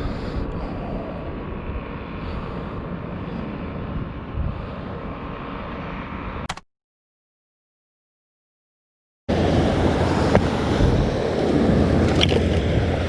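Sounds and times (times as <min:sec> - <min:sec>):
wind rumble on microphone: 0:00.0 - 0:06.4, 0:09.3 - 0:13.0
surf washing on beach: 0:09.3 - 0:13.0.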